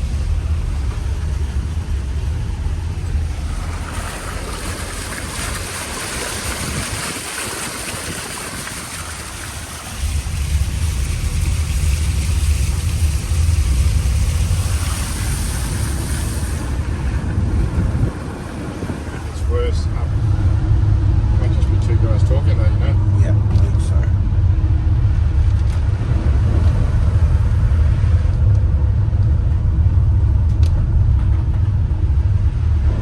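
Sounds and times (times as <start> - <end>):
tyres spraying water: 0.0 - 23.1
vehicle rumble: 0.0 - 33.0.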